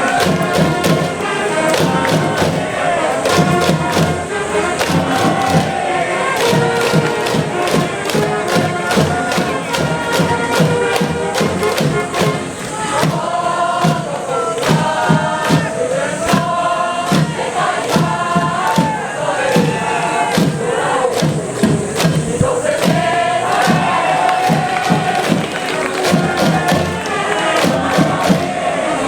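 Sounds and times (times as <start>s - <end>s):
band playing a fight song: 0.0s - 29.0s
crowd chanting and singing: 0.0s - 29.0s
steady drum beat: 0.0s - 29.0s.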